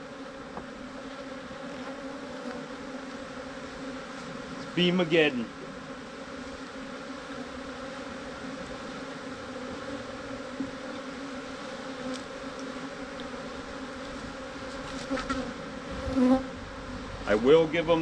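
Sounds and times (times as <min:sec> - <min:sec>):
honeybees buzzing: 0:00.0 - 0:18.0.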